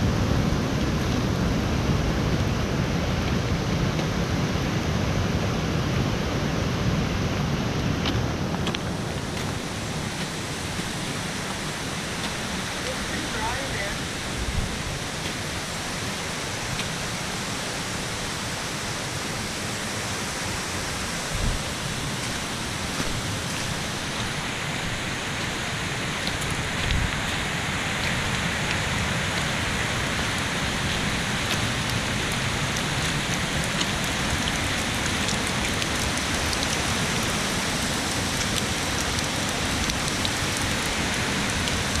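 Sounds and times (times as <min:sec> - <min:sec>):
steady rain falling: 0:00.0 - 0:42.0
raindrop ticks: 0:30.9 - 0:42.0.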